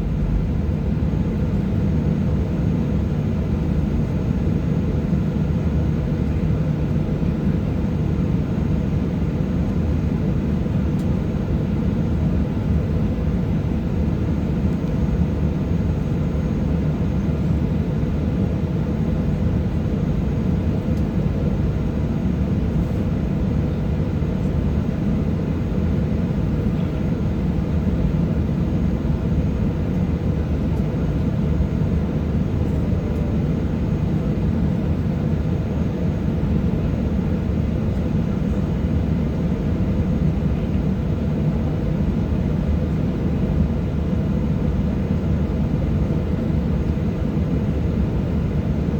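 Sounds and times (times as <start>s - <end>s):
airliner cabin noise: 0.0s - 48.9s.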